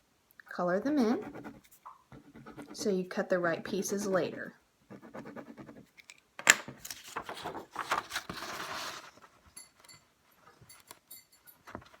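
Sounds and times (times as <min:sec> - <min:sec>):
marker scribbling on paper: 0:01.1 - 0:05.8
paper handling: 0:06.8 - 0:09.3.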